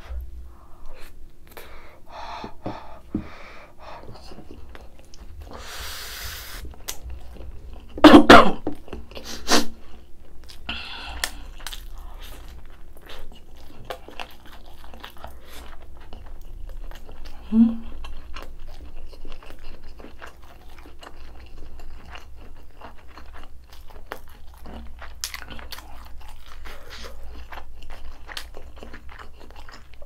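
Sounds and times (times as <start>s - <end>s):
cough-like throat burst: 8.0s - 8.7s
close chewing: 8.7s - 30.0s.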